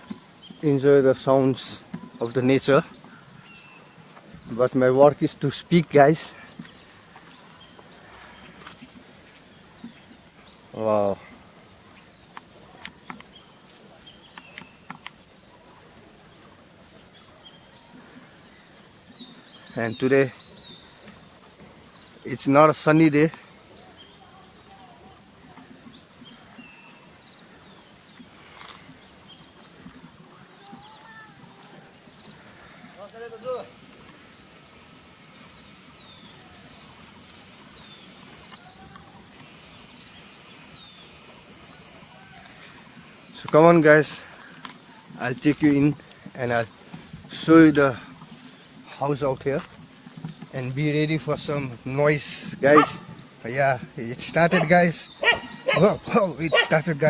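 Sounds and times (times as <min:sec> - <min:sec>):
insects shrilling: 0:00.0 - 0:46.8, 0:47.4 - 0:57.0
bird chirping: 0:05.4 - 0:15.7, 0:16.3 - 0:21.3, 0:50.2 - 0:57.0.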